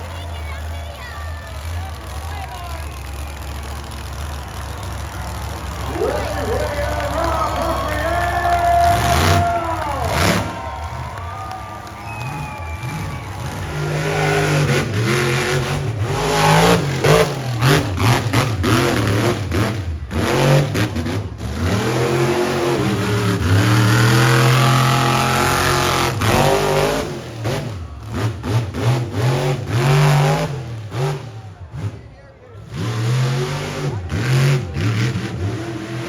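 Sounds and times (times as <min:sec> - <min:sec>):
truck engine revving hard: 0:00.0 - 0:36.0.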